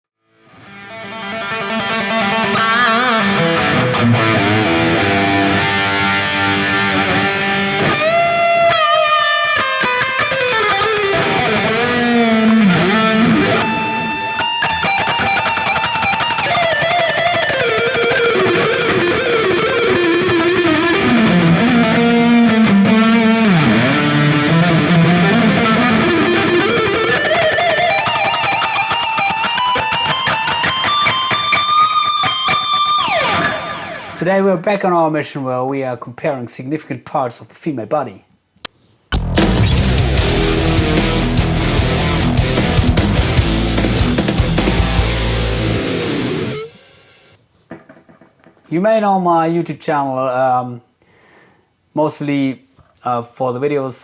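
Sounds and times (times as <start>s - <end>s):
electric guitar lead melody: 0.3s - 34.2s, 39.1s - 47.4s.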